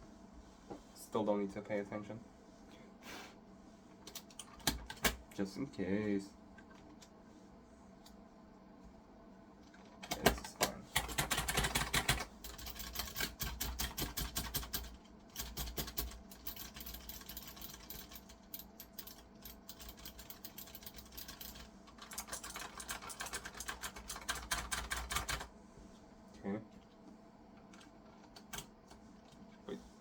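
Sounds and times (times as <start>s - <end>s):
computer keyboard keys clicking: 4.0s - 5.2s, 9.7s - 25.5s, 27.6s - 29.0s.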